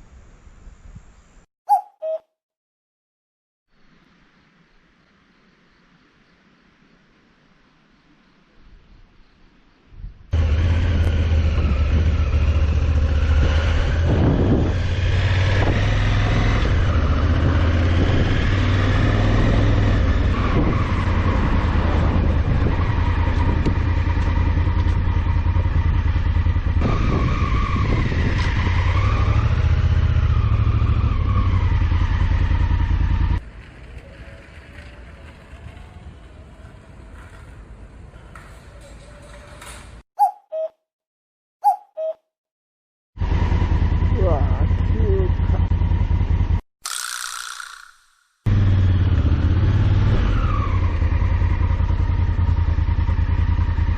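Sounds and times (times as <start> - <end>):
motorcycle engine rumbling: 10.3 - 40.4, 43.2 - 53.9.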